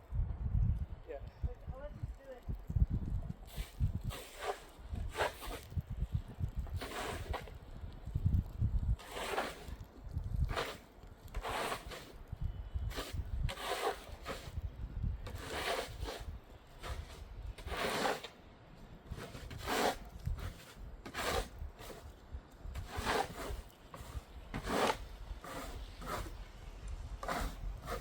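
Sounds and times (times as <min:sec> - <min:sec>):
snow scraper rasping on sidewalk: 0:03.4 - 0:05.8, 0:06.7 - 0:07.6, 0:08.9 - 0:12.2, 0:12.8 - 0:28.0.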